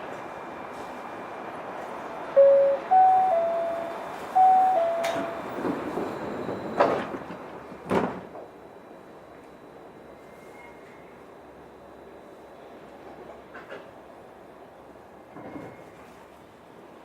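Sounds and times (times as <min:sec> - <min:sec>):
two-note falling chime: 0:02.4 - 0:05.5.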